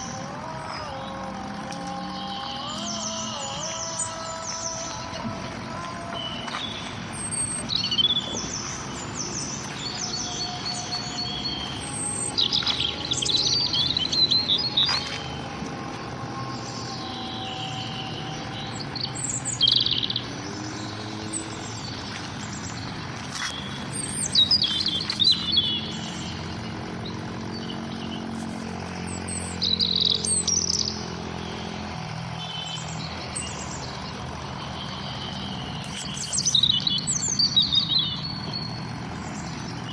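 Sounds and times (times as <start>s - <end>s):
songbirds chirping and singing: 0.0s - 39.9s
steady low background hum: 0.0s - 39.9s.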